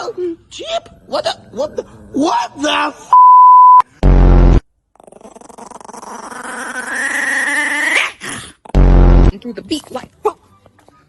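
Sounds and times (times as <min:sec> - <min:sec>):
censor bleep: 0:03.1 - 0:04.6
distorted low blast: 0:04.0 - 0:04.6, 0:08.8 - 0:09.3.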